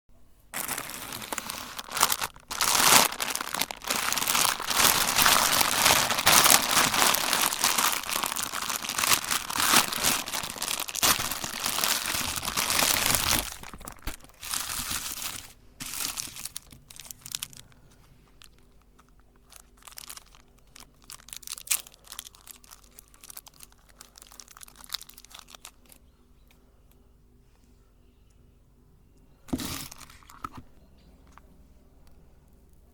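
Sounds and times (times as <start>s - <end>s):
hard candy crunching in grinder: 0.6s - 17.7s, 18.5s - 25.9s.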